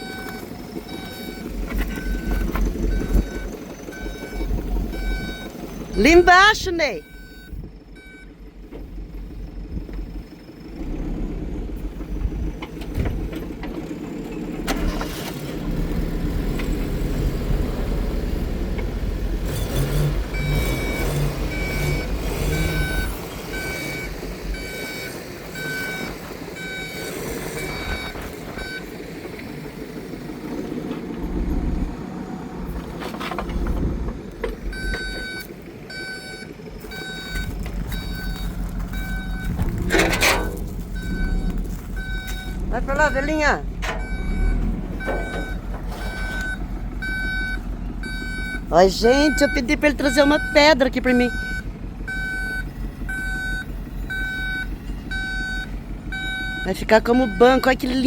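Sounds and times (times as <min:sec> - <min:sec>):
reversing alarm beeping: 0:00.0 - 0:08.3, 0:19.7 - 0:28.9, 0:34.7 - 0:58.0
diesel earthmover running: 0:00.0 - 0:58.0.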